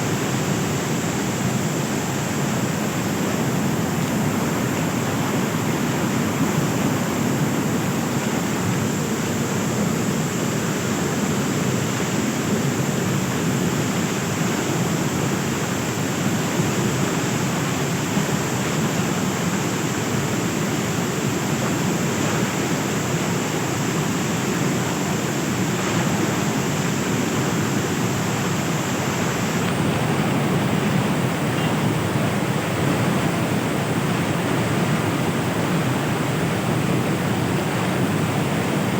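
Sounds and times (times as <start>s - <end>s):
rushing floodwater: 0.0s - 38.9s.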